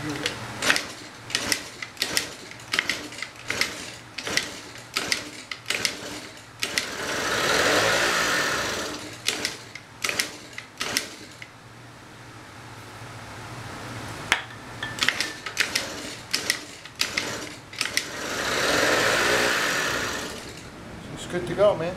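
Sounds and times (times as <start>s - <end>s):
scooter engine mechanical clacks: 0.1s - 6.9s, 9.2s - 11.4s.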